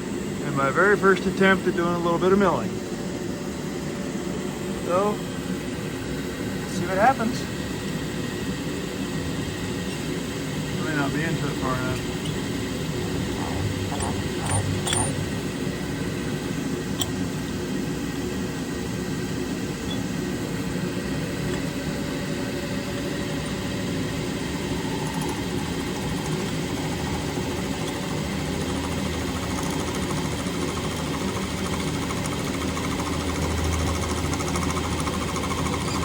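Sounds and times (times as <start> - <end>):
milling machine cutting metal: 6.7 - 17.6, 19.7 - 36.0.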